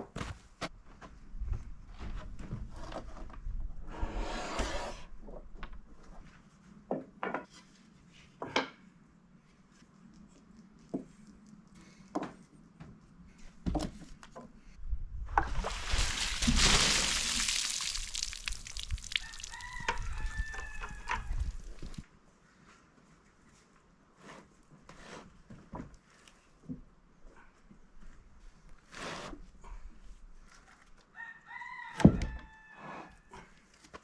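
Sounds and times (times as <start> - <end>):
wood scraping: 16.0 - 22.0.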